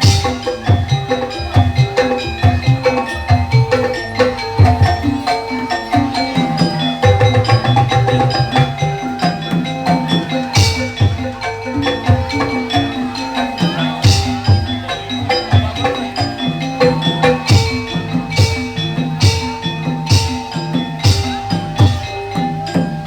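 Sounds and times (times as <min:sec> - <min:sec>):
hand drum pattern: 0:00.0 - 0:23.0
metallophone notes: 0:00.0 - 0:23.0.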